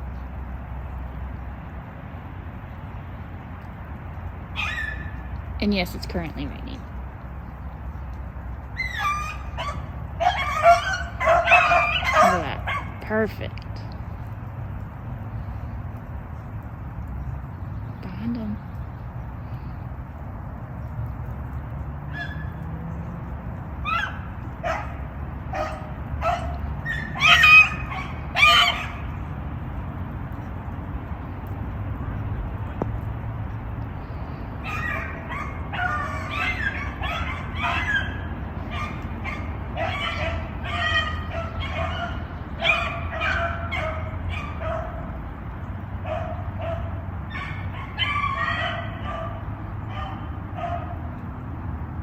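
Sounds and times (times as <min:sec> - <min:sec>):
hounds yelping: 0:04.5 - 0:05.3, 0:08.6 - 0:13.0, 0:22.0 - 0:22.9, 0:23.8 - 0:29.3, 0:34.6 - 0:45.2, 0:46.0 - 0:51.1
dogs baying: 0:08.7 - 0:13.0, 0:22.0 - 0:29.3, 0:34.6 - 0:45.2, 0:46.0 - 0:51.2.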